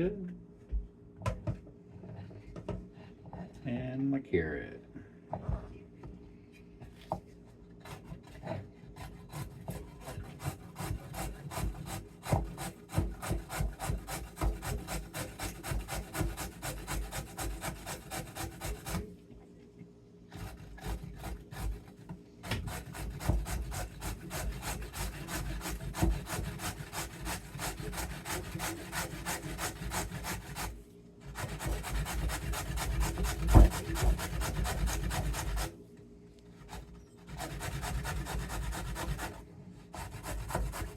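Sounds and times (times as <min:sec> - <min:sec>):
carrot grated on metal grater: 0:31.3 - 0:35.7.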